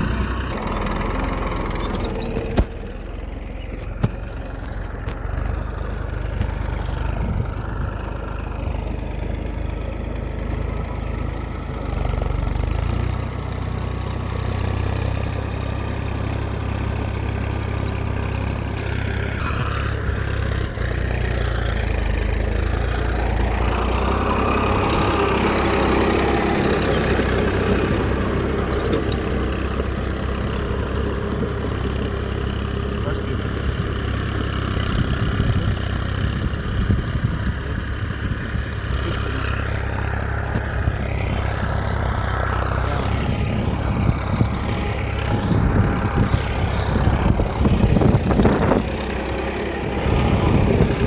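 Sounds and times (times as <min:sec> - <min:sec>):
small tractor motor humming: 0:00.0 - 0:51.0
high motor whine: 0:18.7 - 0:20.8, 0:36.4 - 0:51.0.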